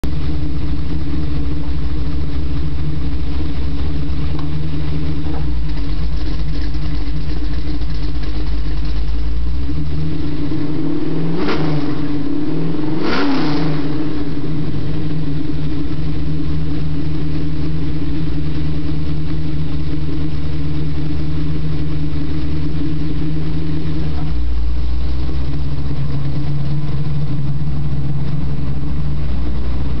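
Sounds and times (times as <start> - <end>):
car engine idling: 0.0 - 30.0
engine revving: 9.7 - 15.7.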